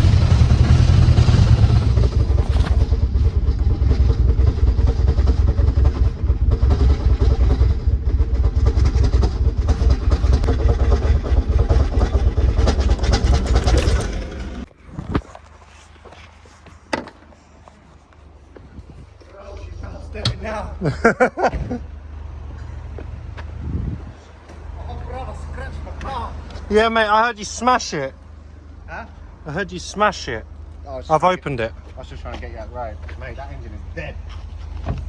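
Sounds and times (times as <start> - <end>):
engine heavy knocking: 0.0 - 14.7.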